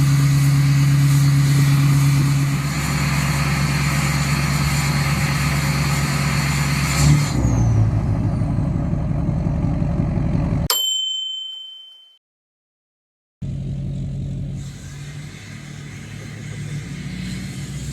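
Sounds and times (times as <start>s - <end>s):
diesel engine idling: 0.0s - 6.9s, 7.8s - 10.7s, 13.4s - 17.9s
bright ding: 10.7s - 12.2s.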